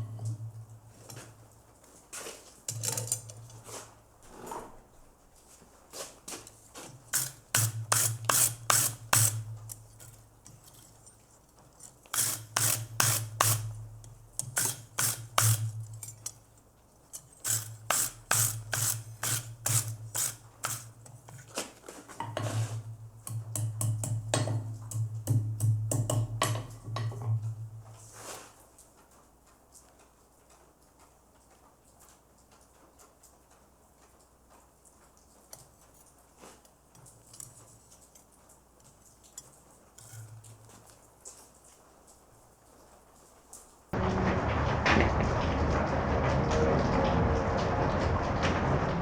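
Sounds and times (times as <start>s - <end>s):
hand tool scraping metal: 6.8s - 9.5s, 11.9s - 13.8s, 14.4s - 15.7s, 17.4s - 20.9s.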